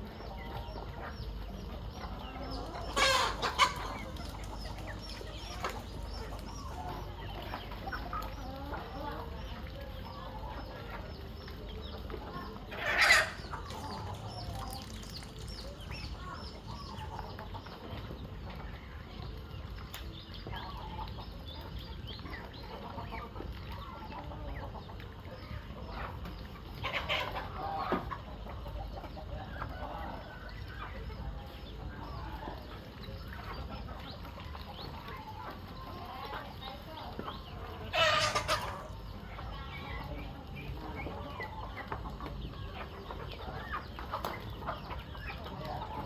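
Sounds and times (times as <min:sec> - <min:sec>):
chickens clucking: 0:00.0 - 0:46.0
sharp chicken calls: 0:02.1 - 0:09.1, 0:12.7 - 0:17.2, 0:37.6 - 0:39.3.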